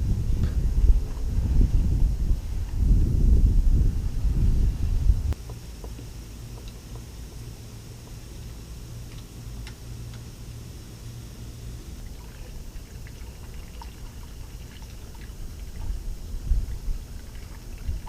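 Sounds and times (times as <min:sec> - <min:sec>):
steady low rumble: 0:00.0 - 0:18.0
liquid pouring and trickling: 0:12.0 - 0:18.0.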